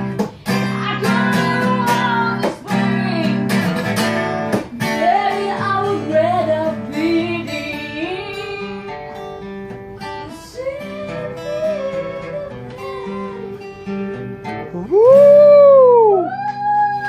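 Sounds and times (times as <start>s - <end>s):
acoustic guitar strumming chords: 0.0s - 16.3s
person singing: 10.2s - 17.0s.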